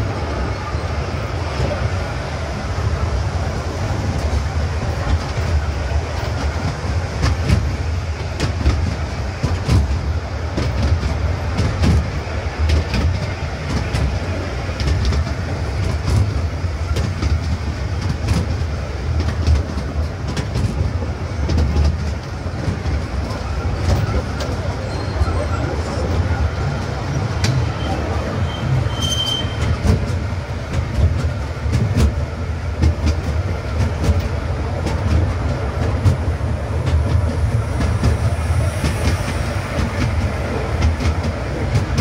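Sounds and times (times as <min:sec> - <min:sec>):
train low rumble: 0:00.0 - 0:42.0
wheels clacking on rails: 0:00.0 - 0:42.0.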